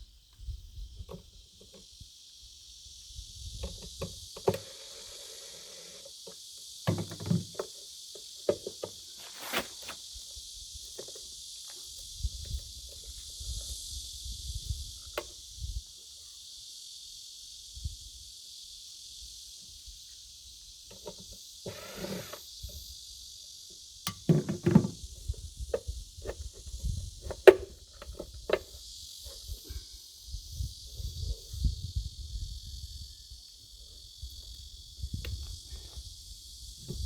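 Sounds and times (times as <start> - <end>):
high-pitched insect chorus: 0.0 - 37.0
knocks and clatters on toilet fixture: 6.8 - 7.7, 24.1 - 25.0.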